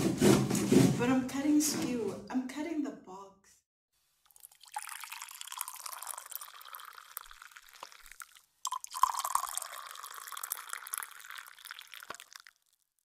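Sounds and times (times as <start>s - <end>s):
cardboard box being cut: 0.0s - 1.0s.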